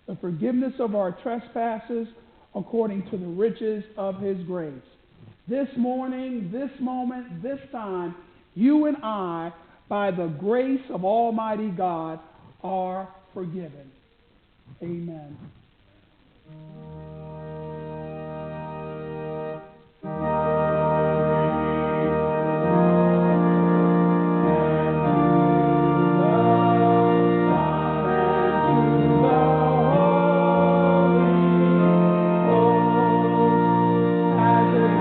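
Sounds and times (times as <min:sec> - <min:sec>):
church organ playing chords: 0:16.5 - 0:35.0.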